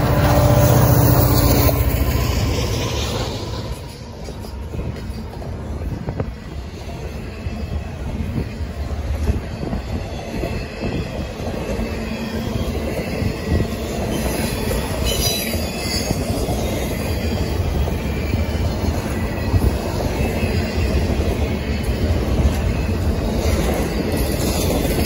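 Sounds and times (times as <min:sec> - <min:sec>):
freight train wheels rumbling: 0:00.0 - 0:25.0
high wheel squeals: 0:06.9 - 0:25.0.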